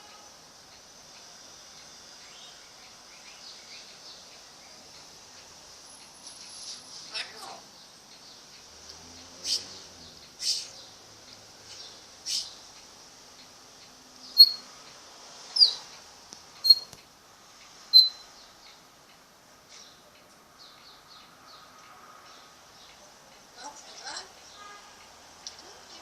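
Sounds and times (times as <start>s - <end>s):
faint high hiss: 0.0s - 26.0s
parrot shrill calls: 14.4s - 14.6s, 15.6s - 15.8s, 17.9s - 18.2s.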